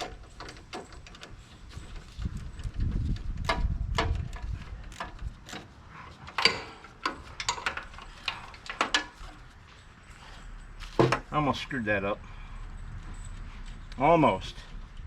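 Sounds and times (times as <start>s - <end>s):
metallic clicks of hand tools: 3.1s - 9.3s.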